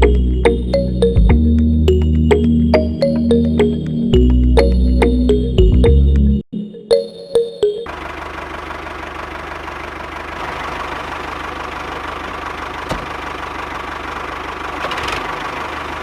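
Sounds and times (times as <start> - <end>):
motor running with rattle: 7.9 - 16.0.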